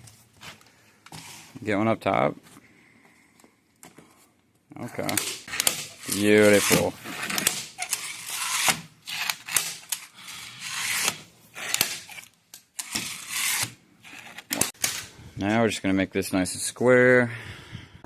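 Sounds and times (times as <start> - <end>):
wood scraping and sliding: 5.5 - 14.7.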